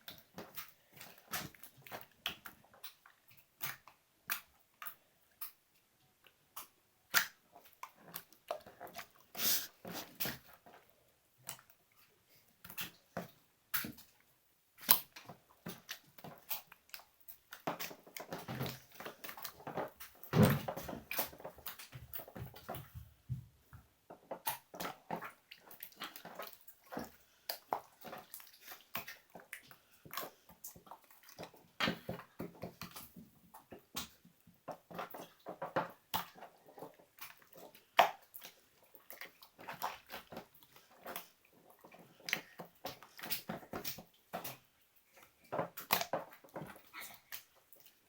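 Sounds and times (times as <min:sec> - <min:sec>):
slime squishing by hand: 0:00.0 - 0:48.0.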